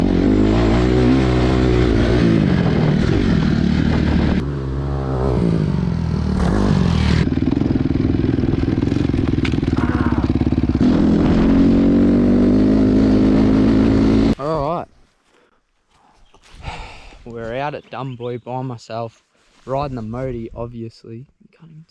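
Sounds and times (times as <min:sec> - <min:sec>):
dirt bike engine revving: 0:00.0 - 0:14.4.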